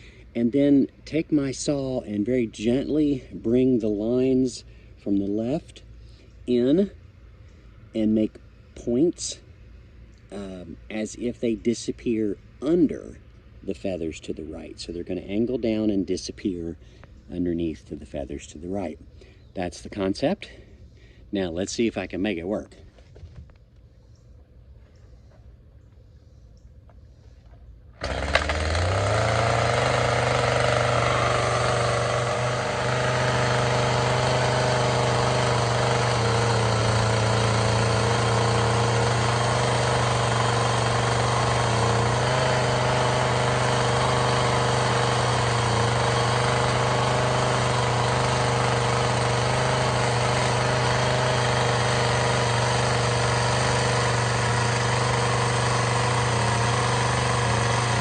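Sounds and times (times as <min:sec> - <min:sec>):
chainsaw engine running: 0:28.0 - 0:58.0.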